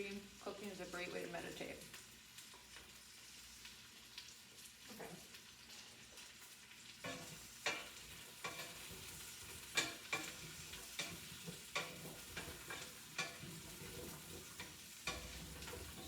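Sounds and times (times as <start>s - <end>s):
food sizzling in a pan: 0.0s - 16.0s
spoon knocking and scraping pan: 7.0s - 16.0s.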